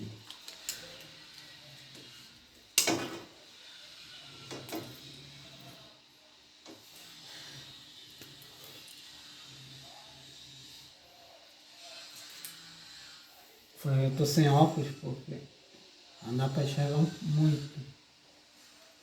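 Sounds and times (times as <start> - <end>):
knife clicks and scrapes on wire: 0.2 - 3.3, 4.5 - 5.1, 12.2 - 12.7.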